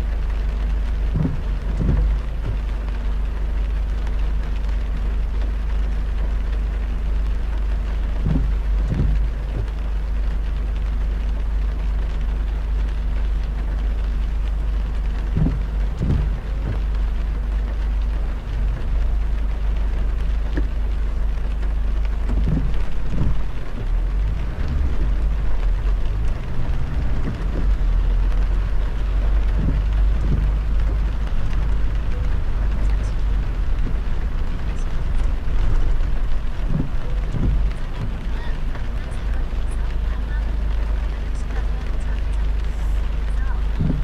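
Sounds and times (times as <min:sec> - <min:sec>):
soft low thumps: 0:00.0 - 0:05.4, 0:07.4 - 0:11.4, 0:12.3 - 0:44.0
low road rumble: 0:00.0 - 0:44.0
rain and road spray hissing: 0:00.0 - 0:44.0.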